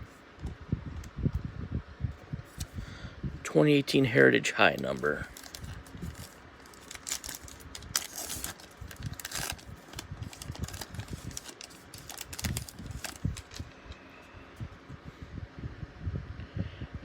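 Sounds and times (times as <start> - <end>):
wrapper crinkling: 4.7 - 13.8.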